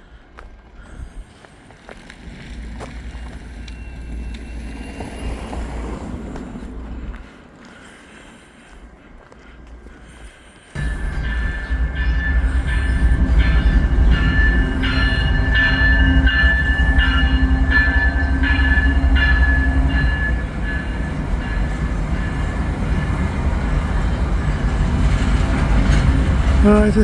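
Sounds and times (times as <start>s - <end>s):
freight train rumble: 0.0s - 7.7s, 10.7s - 27.0s
level-crossing bell ringing: 10.8s - 23.2s.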